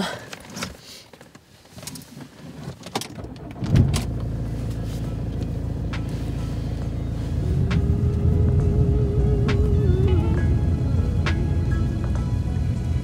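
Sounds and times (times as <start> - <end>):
small clicks and rustles: 0.3 - 3.2
car engine starting and idling: 2.8 - 13.0.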